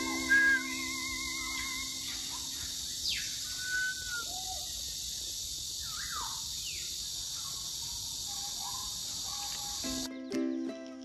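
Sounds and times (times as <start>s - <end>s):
bird falling whistles: 0.0s - 2.2s, 3.1s - 4.4s
bird held note: 0.0s - 2.2s
steady high hiss: 0.0s - 10.1s.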